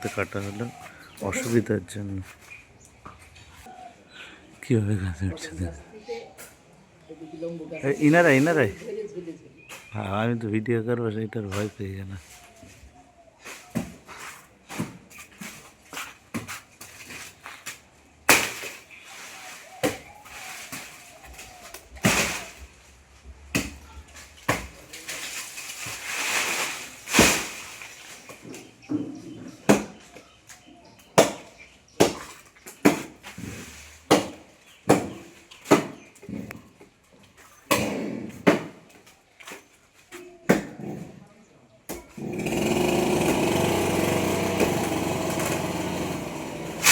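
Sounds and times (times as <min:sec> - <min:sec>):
rustling crashing noise: 0:24.6 - 0:28.4
blade chopping wood: 0:31.2 - 0:33.4, 0:34.1 - 0:36.0, 0:46.6 - 0:46.9.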